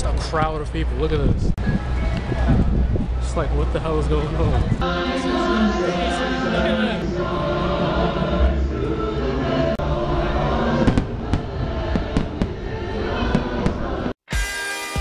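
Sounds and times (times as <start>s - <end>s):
crowd noise: 1.6s - 14.1s
music: 4.8s - 15.0s
fireworks bangs and crackling: 10.8s - 12.6s.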